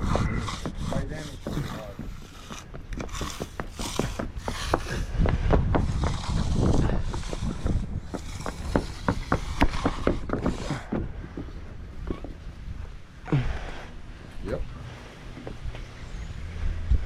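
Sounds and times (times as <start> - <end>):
tools scraping concrete: 0.0 - 11.5.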